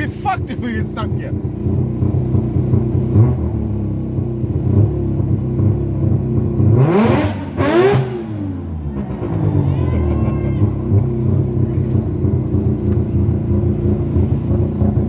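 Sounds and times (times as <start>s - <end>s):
rotary engine idling and revving: 0.0s - 15.0s.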